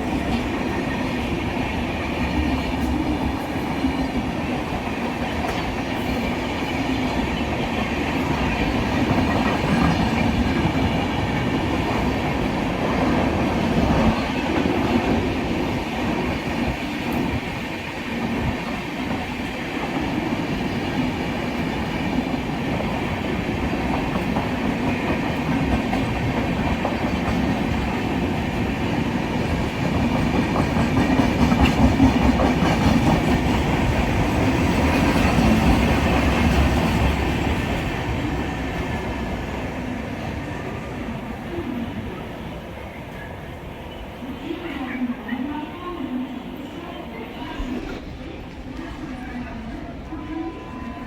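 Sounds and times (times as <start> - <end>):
train wheels clattering on rails: 0.0 - 40.8.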